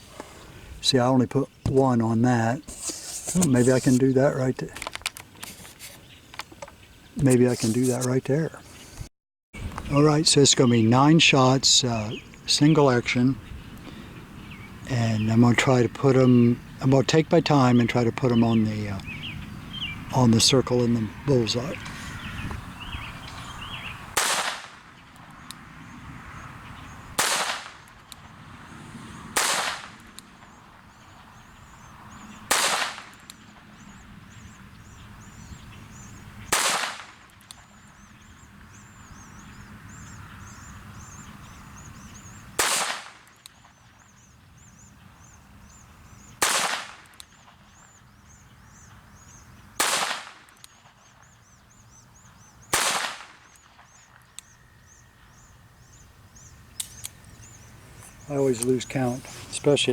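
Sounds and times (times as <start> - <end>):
revolver gunshots: 24.1 - 24.9, 27.2 - 27.9, 29.4 - 30.0, 32.5 - 33.1, 36.5 - 37.2, 42.6 - 43.2, 46.4 - 47.0, 49.8 - 50.5, 52.7 - 53.5.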